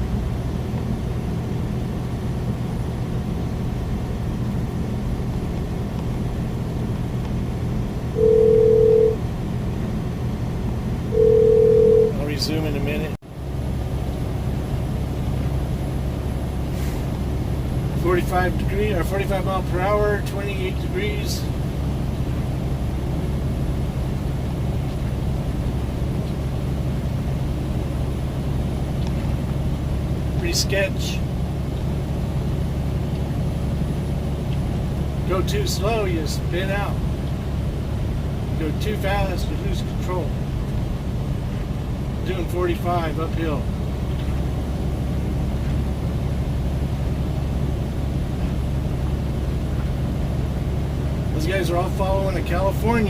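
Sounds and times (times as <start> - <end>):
truck engine and tyres droning: 0.0 - 53.0
electronic beep: 8.2 - 9.2, 11.2 - 12.2.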